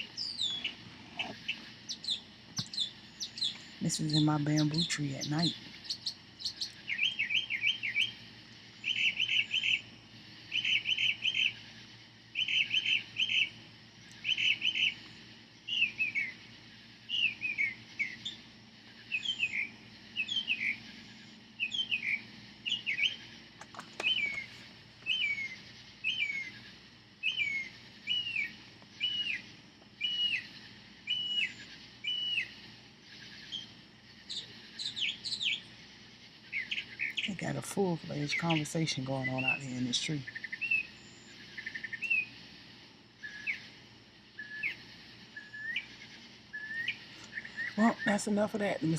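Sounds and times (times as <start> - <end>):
bird singing: 0.0 - 42.4, 43.2 - 48.9
crickets buzzing: 0.0 - 48.9.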